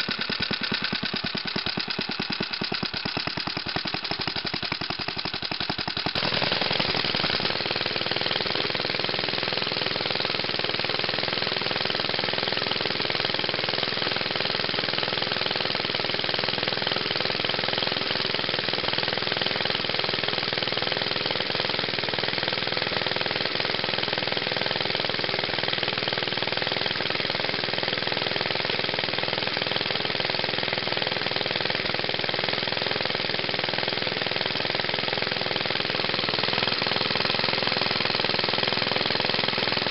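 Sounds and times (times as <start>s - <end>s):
single-cylinder engine chattering: 0.0s - 7.4s.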